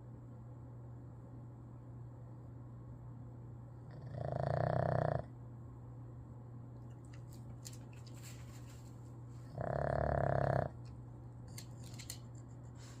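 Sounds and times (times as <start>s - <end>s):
dog snoring loudly: 3.9s - 5.3s, 9.5s - 10.8s.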